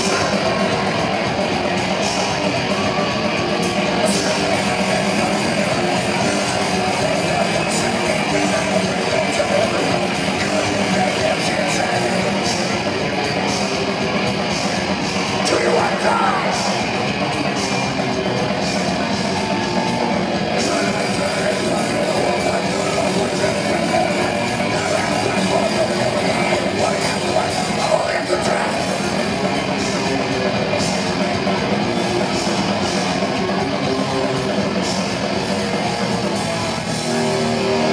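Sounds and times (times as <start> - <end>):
distorted electric guitars: 0.0 - 37.9
heavy metal band playing: 0.0 - 37.9
yelled vocals: 0.0 - 37.9.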